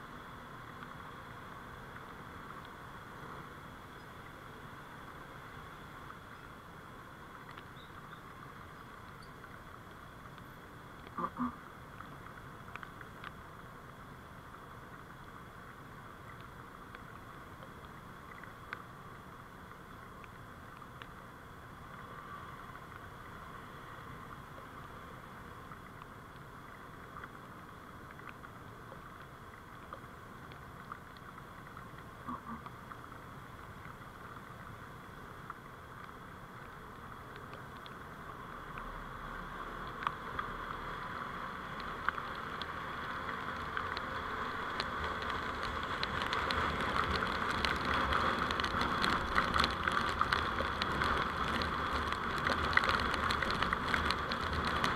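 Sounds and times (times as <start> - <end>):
rapid crackle of small clicks: 0.6 - 54.9
vehicle driving hum: 30.1 - 54.9.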